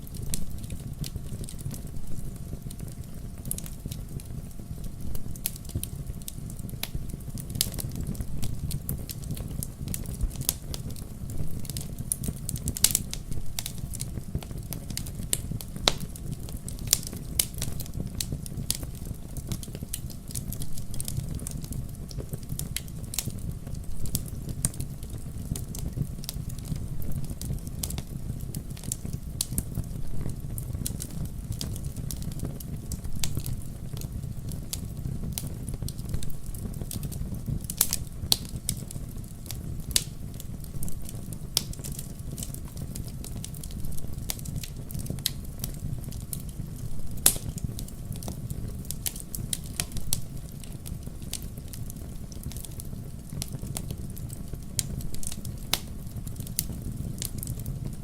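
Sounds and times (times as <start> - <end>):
fireplace crackling and popping: 0.0 - 58.0
low rumble of fire: 0.0 - 58.0.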